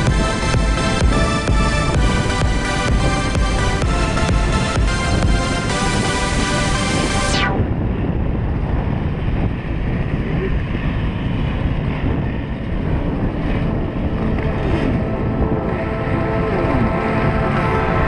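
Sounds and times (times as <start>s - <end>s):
wind buffeting microphone: 0.0s - 18.0s
motorbikes passing by: 8.5s - 18.0s.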